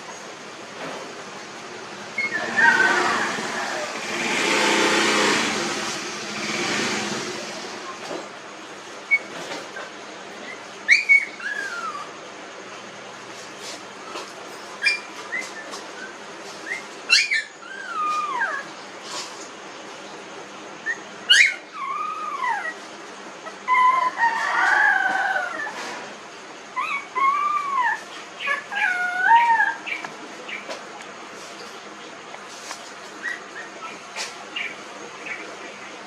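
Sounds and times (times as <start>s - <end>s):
puppies whimpering and crying: 2.1s - 4.1s, 9.0s - 12.3s, 14.0s - 19.0s, 20.8s - 36.0s.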